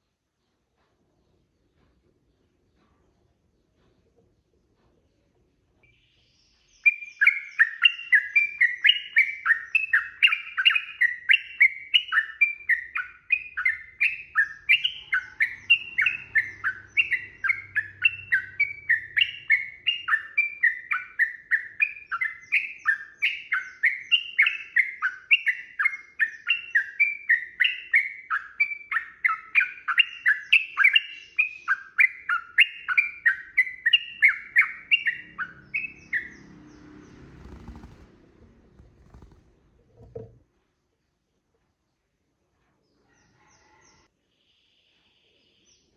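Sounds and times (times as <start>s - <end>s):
bird singing chattering notes: 6.7s - 38.1s.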